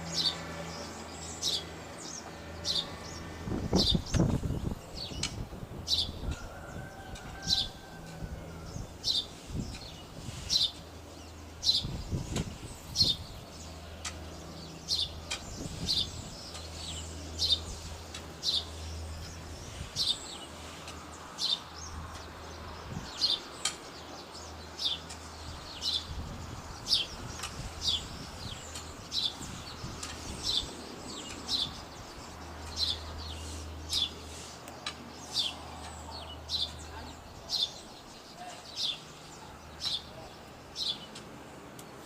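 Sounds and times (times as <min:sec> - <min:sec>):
bird chirping: 0:08.4 - 0:42.0.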